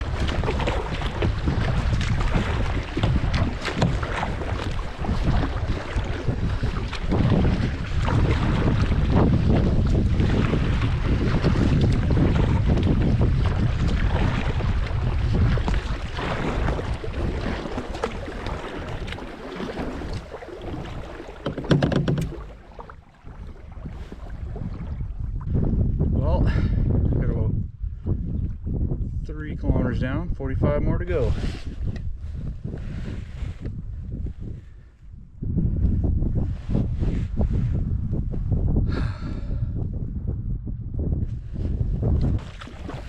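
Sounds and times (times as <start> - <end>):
water splashing around kayak: 0.0 - 26.9, 31.1 - 34.6, 41.6 - 43.0
wind buffeting microphone: 0.0 - 43.0.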